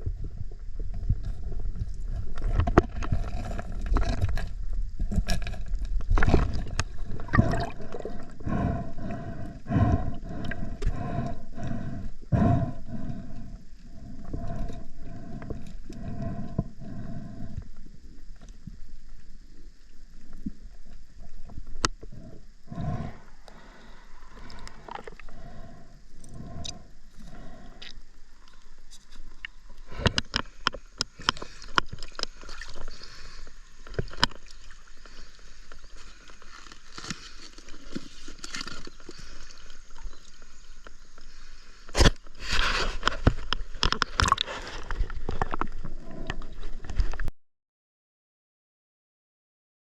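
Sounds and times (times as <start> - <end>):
river water sloshing and gurgling: 1.4 - 8.4, 31.2 - 40.7.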